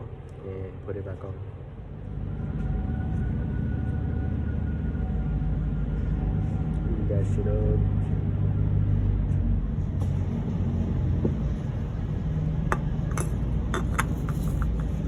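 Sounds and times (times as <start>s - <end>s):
steady low rumble: 0.0s - 15.0s
oil filter clicking and clinking: 12.6s - 15.0s.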